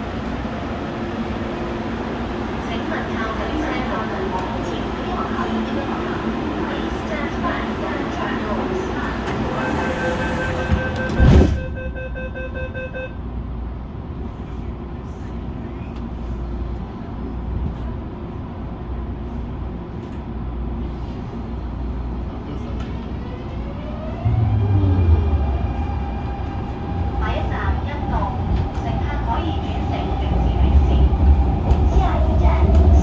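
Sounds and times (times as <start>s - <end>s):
train cabin low rumble: 0.0s - 33.0s
beeping tone: 9.6s - 13.2s.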